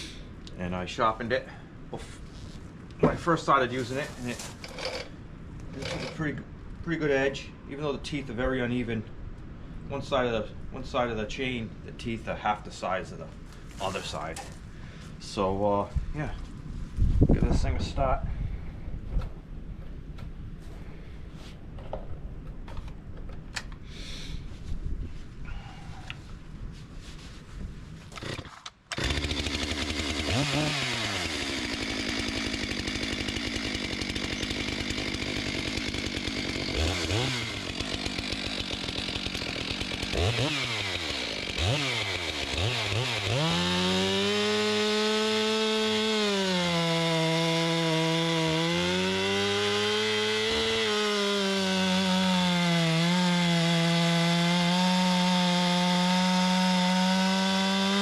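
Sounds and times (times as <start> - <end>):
chainsaw revving and cutting: 3.8 - 5.1, 5.8 - 6.2, 28.2 - 58.0.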